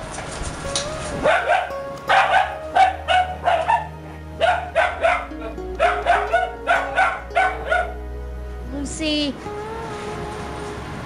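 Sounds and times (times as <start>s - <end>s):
background music: 0.0s - 11.0s
dog barking: 1.2s - 8.0s.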